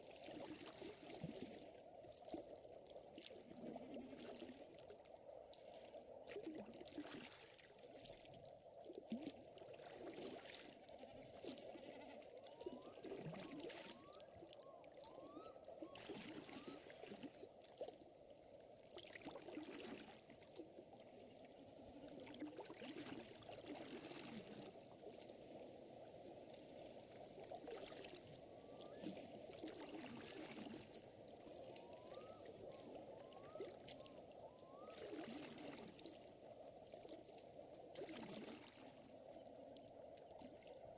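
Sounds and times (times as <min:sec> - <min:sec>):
small waves lapping at shore: 0:00.0 - 0:40.8.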